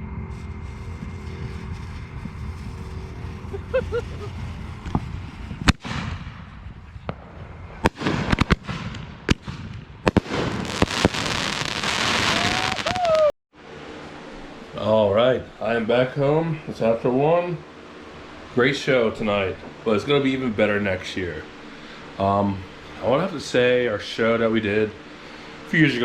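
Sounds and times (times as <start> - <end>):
fireworks bangs: 0.0 - 13.3
fireworks crackling: 0.0 - 13.3.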